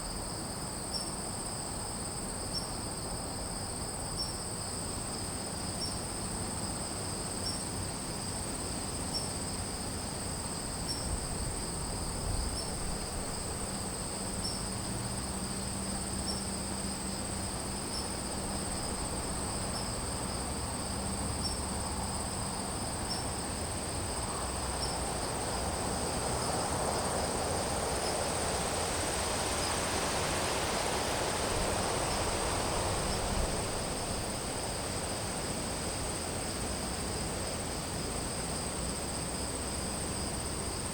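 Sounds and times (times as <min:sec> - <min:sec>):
crickets trilling: 0:00.0 - 0:40.9
broad rushing noise: 0:24.4 - 0:36.4.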